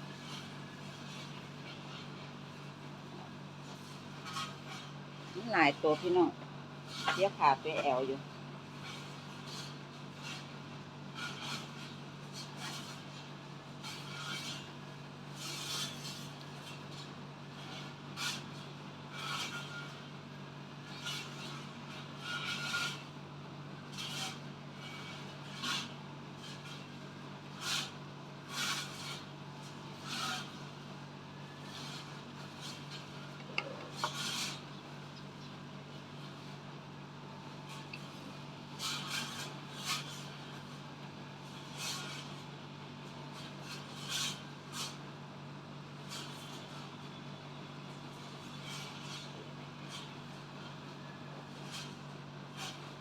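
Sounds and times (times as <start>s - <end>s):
eating crunching and scraping: 31.6s - 35.6s.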